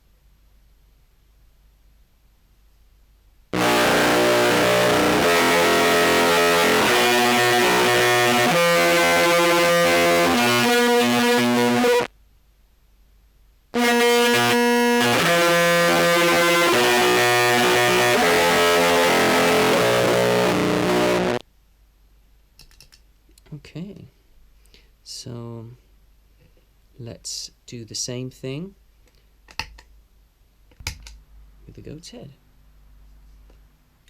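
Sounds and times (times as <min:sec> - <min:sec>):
fuzzed clarinet notes: 0:03.6 - 0:12.1, 0:13.8 - 0:21.4.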